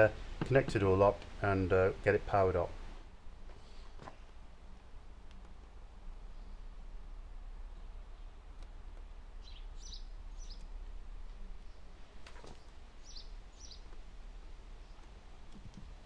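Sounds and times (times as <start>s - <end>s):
faint low hum: 0.0s - 16.0s
bird chirping: 9.3s - 14.0s.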